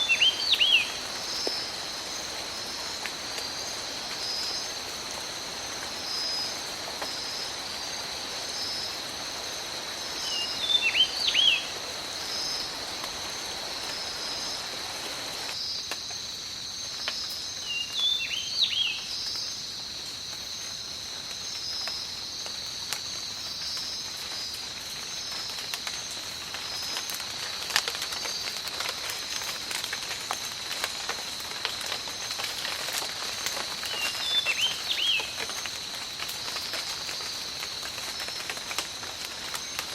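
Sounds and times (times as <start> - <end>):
high insect drone: 0.0 - 24.1
rain falling in forest: 0.0 - 39.9
bird sweeping calls: 10.3 - 11.8.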